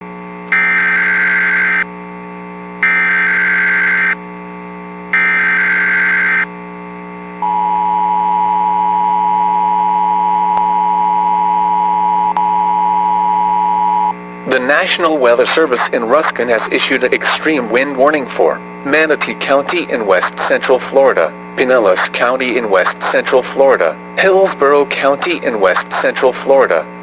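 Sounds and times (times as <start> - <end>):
steady low hum: 0.2 - 27.0
two-tone attention signal: 0.5 - 1.9, 2.8 - 4.2, 5.2 - 6.5, 7.4 - 14.2
screechy digital data tones: 0.6 - 1.8, 2.8 - 4.2, 5.2 - 6.5.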